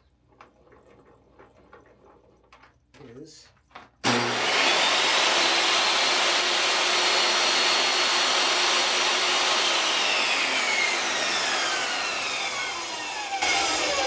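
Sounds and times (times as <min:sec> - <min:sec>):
saw blade coasting down: 0:04.0 - 0:14.0
table saw motor whine: 0:04.0 - 0:14.0.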